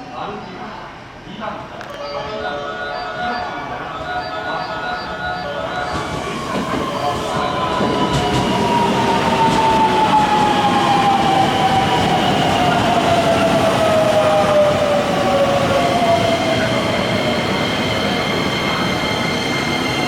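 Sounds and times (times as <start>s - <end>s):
train wheels rumbling on rails: 5.8s - 20.0s.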